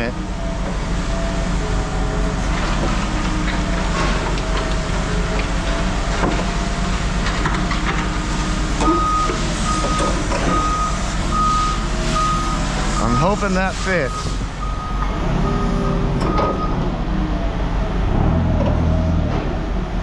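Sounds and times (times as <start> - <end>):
heavy machine engine running: 0.0 - 20.0
backup alarm beeping: 8.8 - 16.9.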